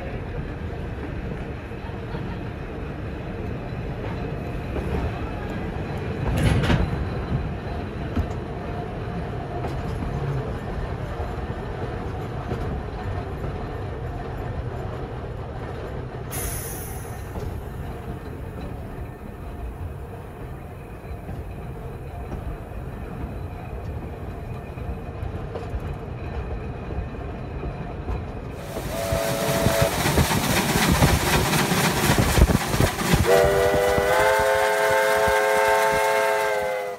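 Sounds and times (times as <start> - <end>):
train rumble and clatter: 0.0 - 36.9
steam locomotive exhaust beats: 15.6 - 25.7, 28.0 - 36.9
steam hiss: 16.3 - 17.8, 28.6 - 36.9
steam whistle chime: 28.8 - 30.0, 33.3 - 36.9.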